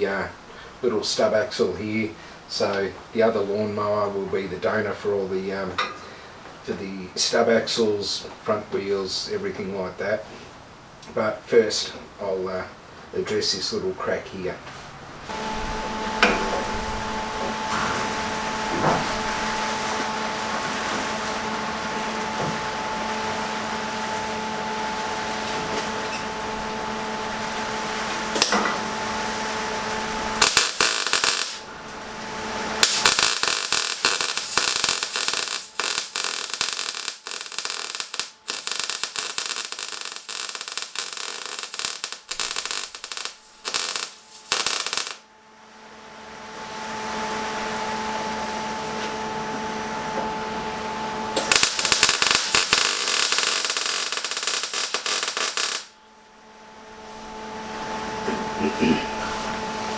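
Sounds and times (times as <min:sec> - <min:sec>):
steady machine hum: 0:14.9 - 0:59.9
welding arc crackling: 0:26.3 - 0:45.2, 0:51.4 - 0:56.0.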